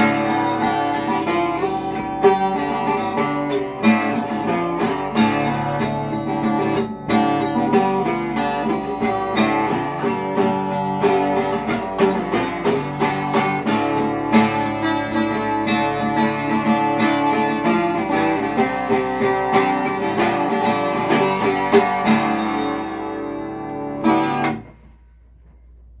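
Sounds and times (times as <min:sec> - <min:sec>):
acoustic guitar picking and strumming: 0:00.0 - 0:25.0.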